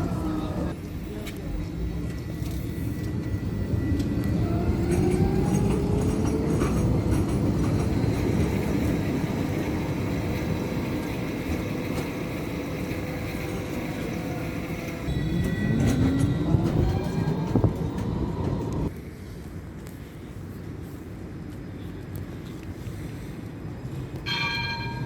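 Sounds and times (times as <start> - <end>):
tram motor whine: 0.0 - 18.9
wheels rumbling on rail: 0.0 - 25.0.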